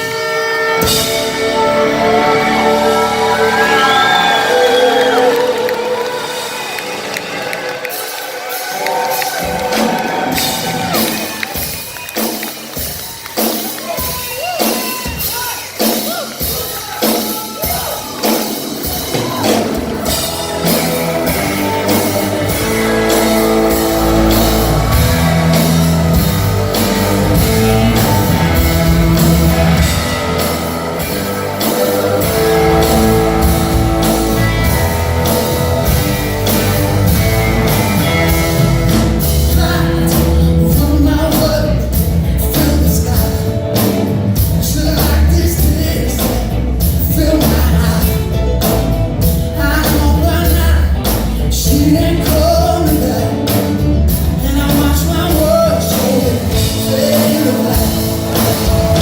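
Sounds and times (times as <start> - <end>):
live blues rock band: 0.0 - 59.0
steady drum beat: 0.8 - 59.0
person singing: 19.1 - 36.0, 36.9 - 48.8, 49.4 - 59.0.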